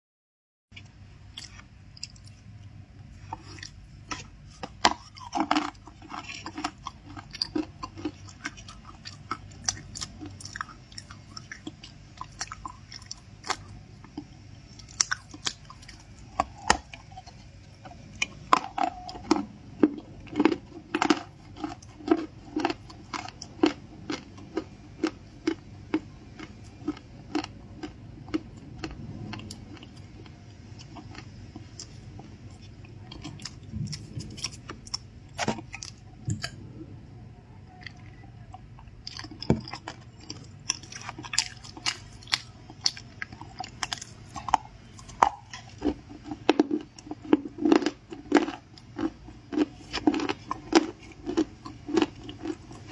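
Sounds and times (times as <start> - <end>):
person crunching cookies: 0.8 - 36.7, 37.8 - 52.9.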